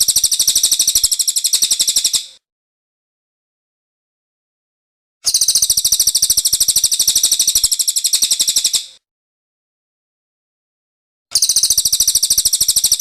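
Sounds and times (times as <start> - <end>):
songbird trilling: 0.0 - 2.3, 5.3 - 8.9, 11.4 - 13.0.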